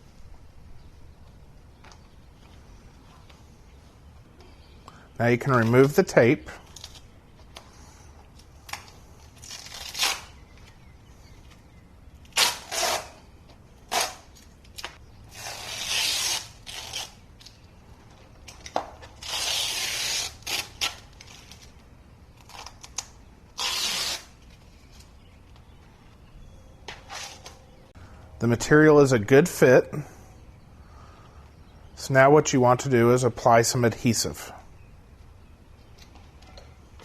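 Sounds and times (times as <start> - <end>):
tape ripping off flooring: 8.6 - 10.4, 12.3 - 13.2, 13.8 - 17.6, 18.5 - 21.7, 22.4 - 25.0.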